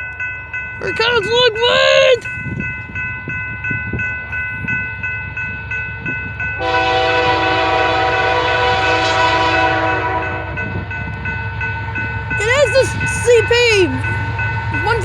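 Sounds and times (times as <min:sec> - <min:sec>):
railroad crossing bell dinging: 0:00.0 - 0:15.0
train horn blast: 0:06.6 - 0:10.7.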